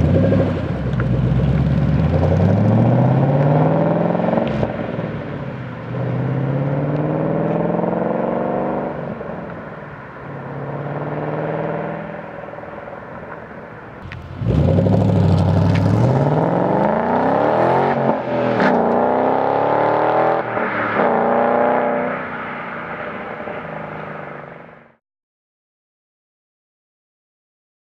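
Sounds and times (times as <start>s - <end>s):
car engine revving: 0.0s - 9.3s, 14.0s - 22.5s.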